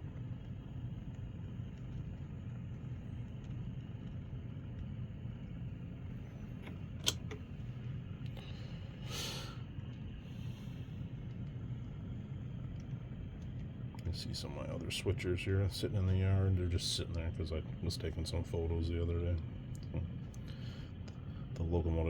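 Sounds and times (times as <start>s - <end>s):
sharp click: 6.6s - 7.5s.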